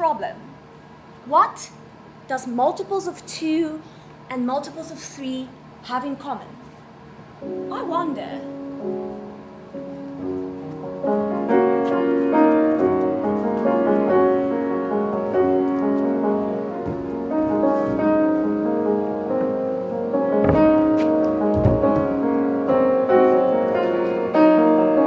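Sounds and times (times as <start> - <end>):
piano melody: 7.4 - 25.0
low thumps: 15.2 - 18.6, 19.3 - 23.4.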